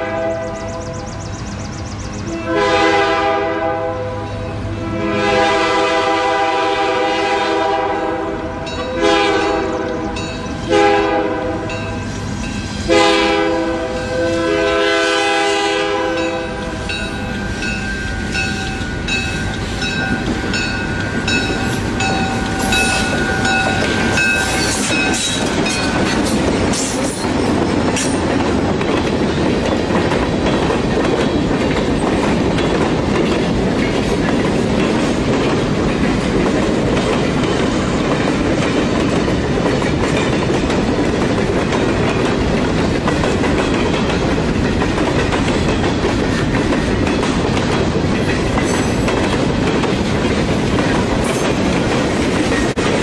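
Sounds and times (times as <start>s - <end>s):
locomotive air horn blasts: 0.0s - 0.7s, 2.3s - 10.1s, 10.7s - 11.8s, 12.8s - 17.0s
wheels clicking over rail joints: 16.2s - 53.0s.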